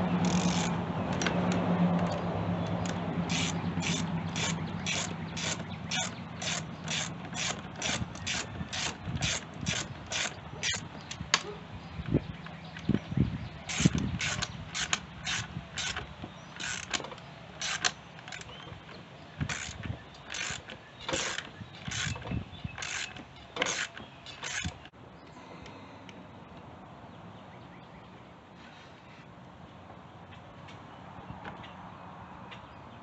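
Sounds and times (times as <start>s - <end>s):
ratchet wrench clicking: 0.2s - 1.4s, 2.0s - 10.8s, 13.7s - 18.6s, 19.4s - 22.2s, 22.8s - 24.8s.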